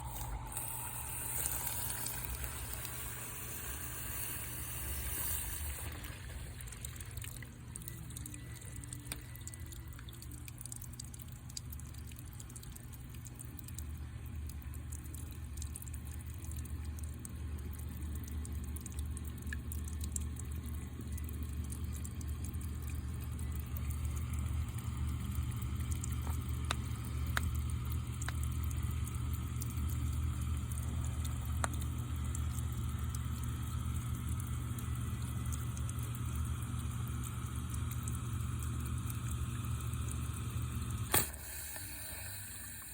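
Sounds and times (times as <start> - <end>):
water splashing and pouring: 0.0 - 12.6
sump pump humming: 0.0 - 42.9.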